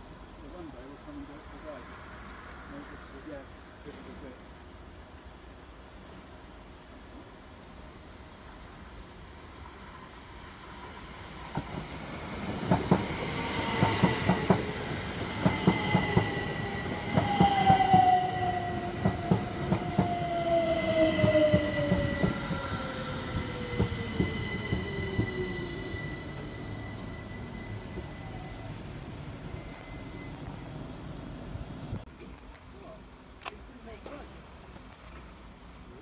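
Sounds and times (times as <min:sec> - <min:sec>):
train wheels clacking: 0:11.5 - 0:28.2
steady high tone: 0:15.4 - 0:31.6.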